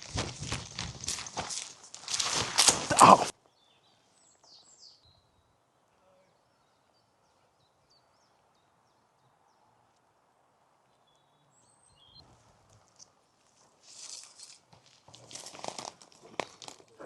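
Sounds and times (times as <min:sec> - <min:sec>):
small birds chirping: 0:03.3 - 0:10.0, 0:10.8 - 0:13.5.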